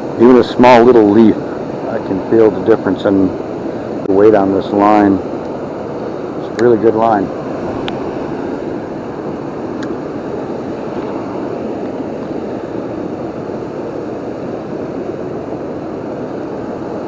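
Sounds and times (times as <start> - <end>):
waterfall and river rushing: 7.0 - 17.0.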